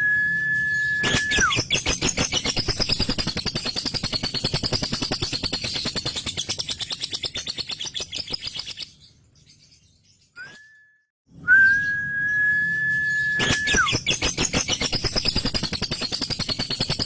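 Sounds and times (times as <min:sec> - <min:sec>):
bird whistling high note: 0:00.0 - 0:01.7, 0:10.4 - 0:14.0.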